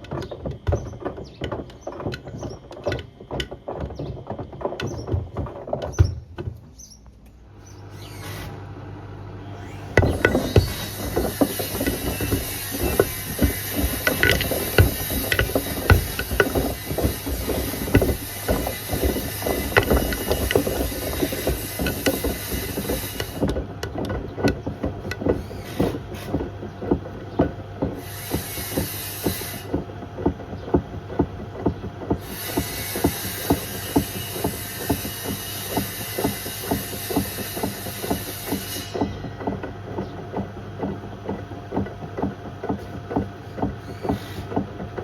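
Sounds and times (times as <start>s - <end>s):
objects knocking against drum: 0.0s - 6.7s, 9.9s - 45.0s
washing machine drum turning: 9.6s - 45.0s.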